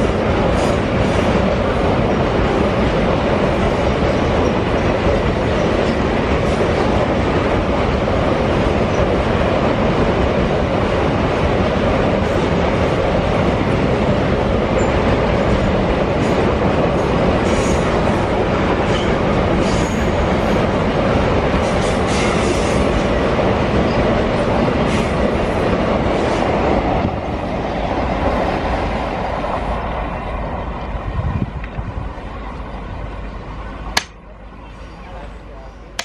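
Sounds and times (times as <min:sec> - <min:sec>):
clickety-clack over rail joints: 0:00.0 - 0:27.3
train wheels rumbling on rails: 0:00.0 - 0:36.0.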